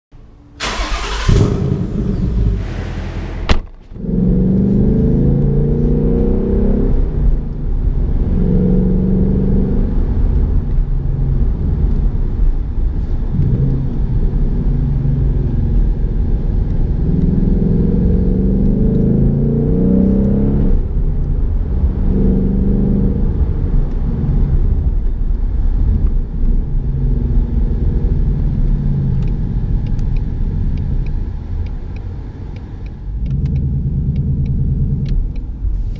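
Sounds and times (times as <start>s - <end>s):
car engine rumbling: 0.1s - 35.9s.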